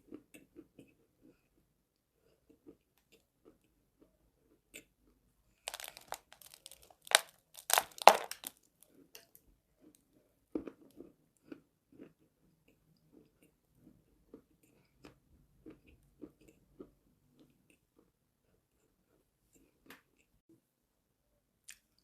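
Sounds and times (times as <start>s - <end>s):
chalk crunching when bitten: 5.7s - 8.6s.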